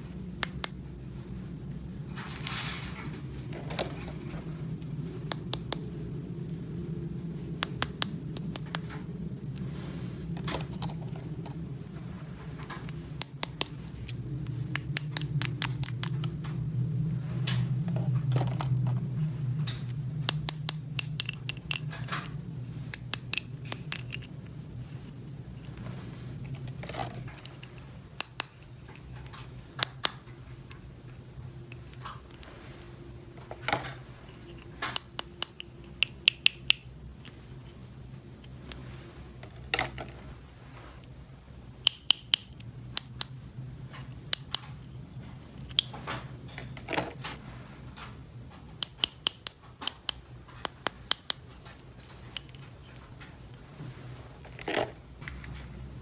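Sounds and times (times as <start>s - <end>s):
steady low hum: 0.0s - 56.0s
plastic toy pieces clicking: 20.3s - 22.3s, 48.8s - 51.4s.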